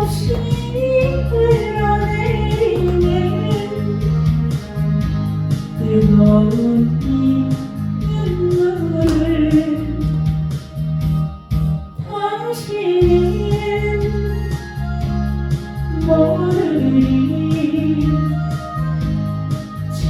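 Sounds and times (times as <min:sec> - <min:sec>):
person singing: 0:00.0 - 0:10.2, 0:12.0 - 0:14.5, 0:15.9 - 0:18.4
bass line: 0:00.0 - 0:12.0, 0:13.0 - 0:20.0.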